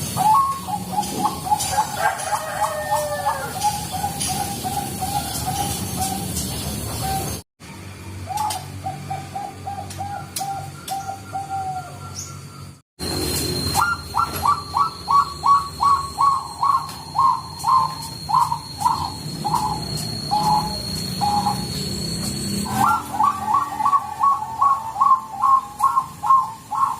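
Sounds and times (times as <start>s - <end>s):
doves cooing: 0.0s - 7.4s, 8.2s - 12.2s, 13.7s - 26.9s
faint high whine: 11.9s - 23.2s.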